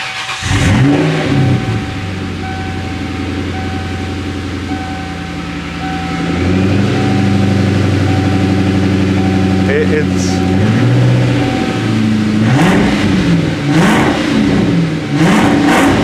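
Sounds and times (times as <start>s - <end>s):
car engine starting and idling: 0.0s - 16.0s.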